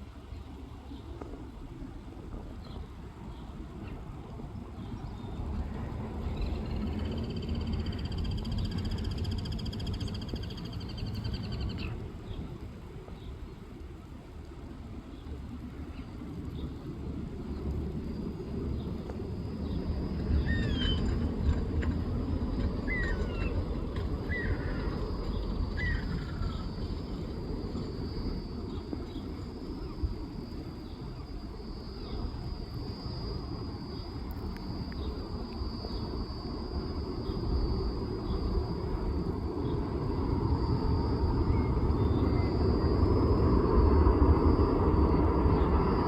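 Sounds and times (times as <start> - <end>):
low outdoor rumble: 0.0 - 46.0.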